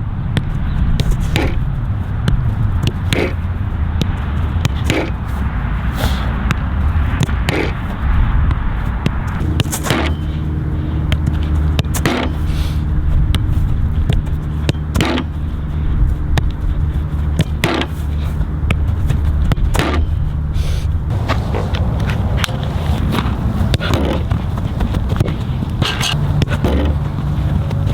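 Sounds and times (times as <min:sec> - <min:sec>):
steady hum: 0:00.0 - 0:27.9
soccer ball being kicked: 0:00.2 - 0:20.4, 0:21.1 - 0:27.9
low rumble: 0:01.6 - 0:14.5, 0:20.9 - 0:27.9.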